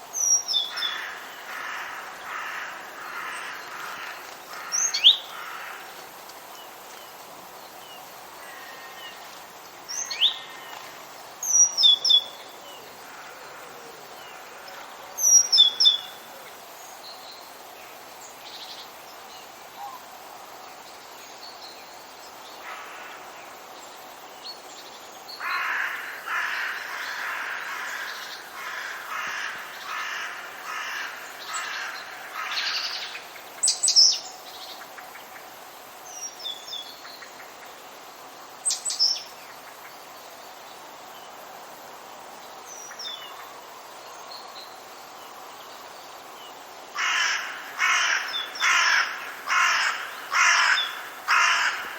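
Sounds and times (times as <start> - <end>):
steady background hiss: 0.0 - 51.9
birds chirping: 47.0 - 51.9
harsh repeated bird calls: 47.0 - 51.9.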